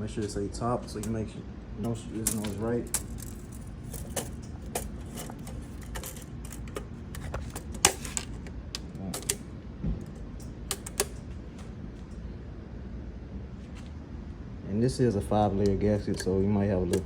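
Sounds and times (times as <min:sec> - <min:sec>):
light clicks of engine parts: 0:15.5 - 0:17.0.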